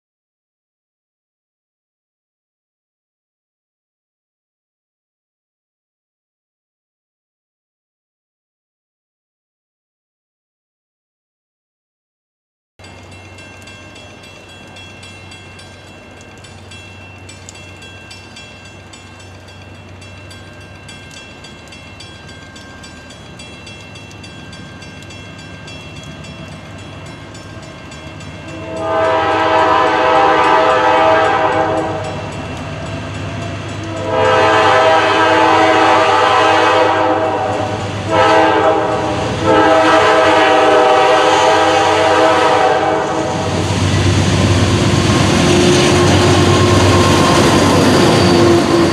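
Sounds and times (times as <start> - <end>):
train rumble: 12.8 - 48.9
locomotive horn blasts: 28.5 - 32.2, 33.8 - 43.6, 45.4 - 48.9.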